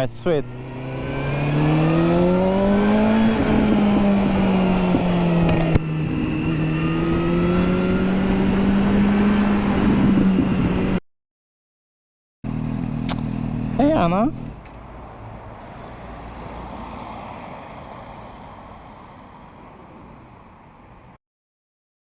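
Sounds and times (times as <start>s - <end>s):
motorcycle engine accelerating: 0.2s - 11.0s, 12.4s - 14.7s.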